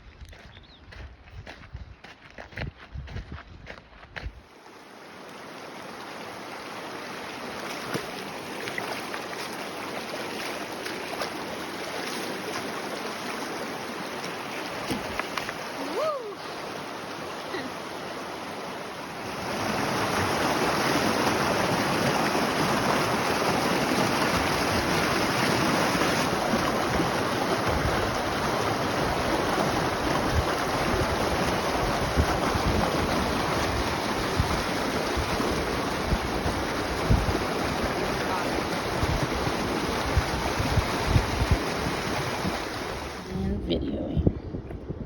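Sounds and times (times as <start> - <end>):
strong wind over microphone: 0.9 - 4.4, 27.6 - 45.0
gusts buffeting the mic: 26.4 - 45.0.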